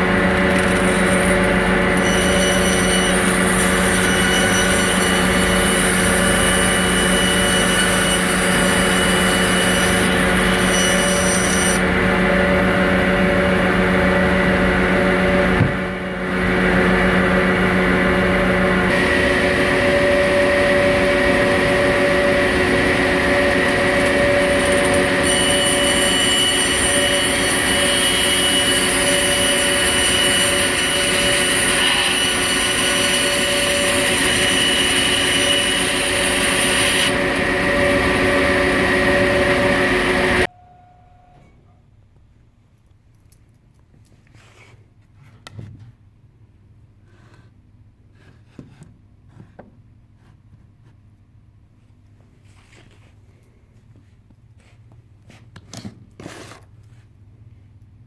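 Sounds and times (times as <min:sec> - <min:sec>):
power tool running: 0:00.0 - 0:40.5.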